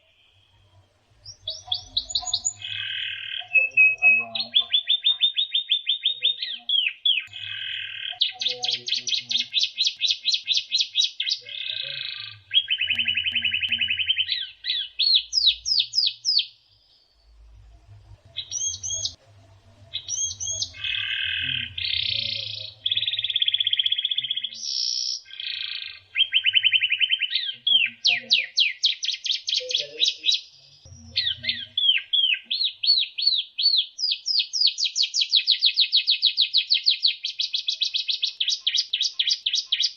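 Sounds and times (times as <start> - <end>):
bird singing trills and whistles: 0.0 - 19.2, 19.8 - 39.9.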